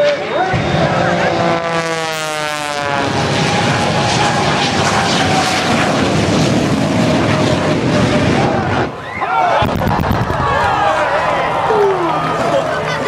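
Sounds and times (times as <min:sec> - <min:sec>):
propeller plane passing low: 0:00.0 - 0:09.0
jet engine roar with high whine: 0:00.0 - 0:13.0.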